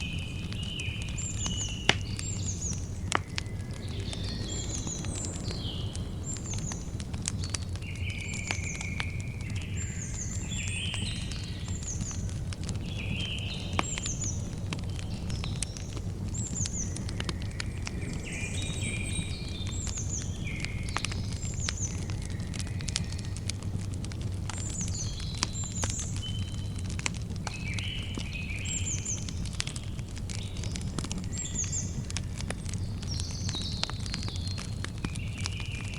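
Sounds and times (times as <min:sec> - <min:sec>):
birds chirping: 0:00.0 - 0:23.6
campfire crackling and popping: 0:00.0 - 0:35.9
low rumble of fire: 0:00.0 - 0:35.9.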